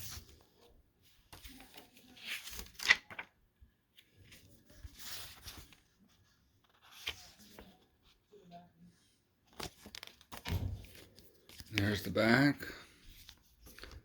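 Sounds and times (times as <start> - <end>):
paper and plastic rustling: 9.4 - 14.0.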